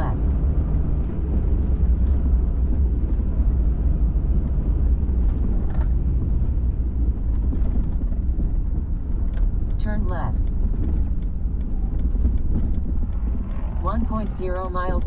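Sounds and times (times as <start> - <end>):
truck engine and tyre rumble: 0.0 - 15.0.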